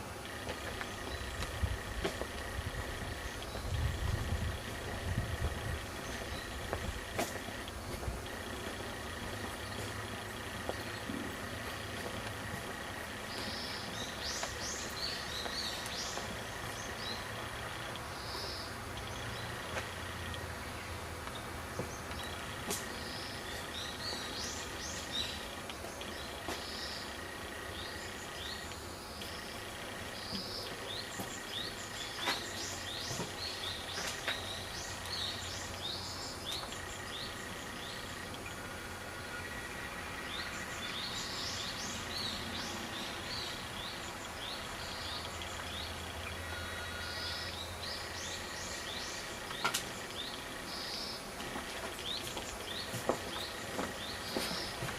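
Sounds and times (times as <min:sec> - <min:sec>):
birds chirping: 0:00.0 - 0:54.9
low background hum: 0:00.0 - 0:54.9.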